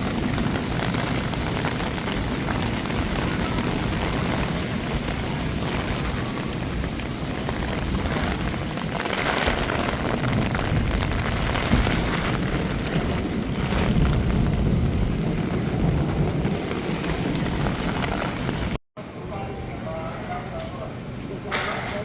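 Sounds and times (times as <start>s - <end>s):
deep low rumble: 0.0s - 18.8s
heavy rain hiss: 0.0s - 19.9s.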